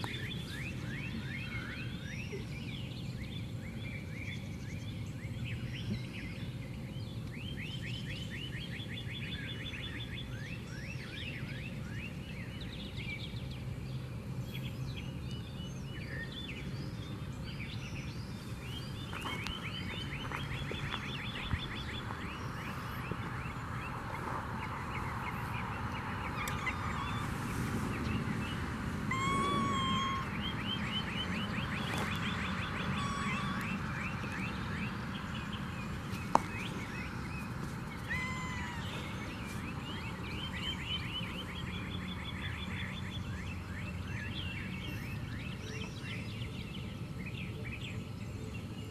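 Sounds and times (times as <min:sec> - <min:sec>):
songbirds trilling: 0:00.0 - 0:48.9
short steady-pitched bird call: 0:29.1 - 0:31.2, 0:32.6 - 0:33.8.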